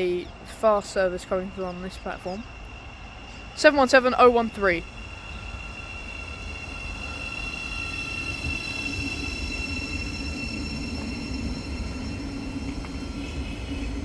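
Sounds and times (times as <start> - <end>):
electric train whine: 0.0 - 14.0
low hum: 0.8 - 14.0.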